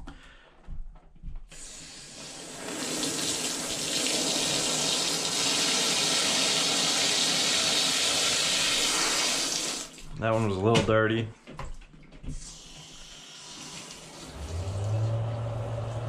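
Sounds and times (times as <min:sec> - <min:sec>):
water gushing from hose: 0:01.6 - 0:10.1, 0:12.4 - 0:16.0.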